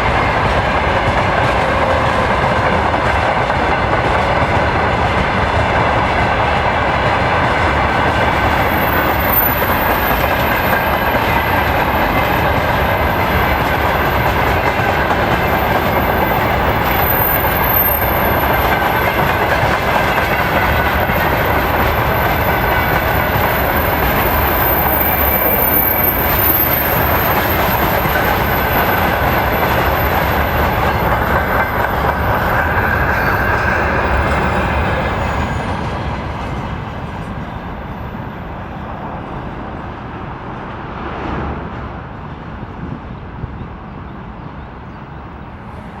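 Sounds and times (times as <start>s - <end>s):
train wheels rumbling on rails: 0.0s - 46.0s
high-pitched wheel squeal: 23.4s - 35.8s.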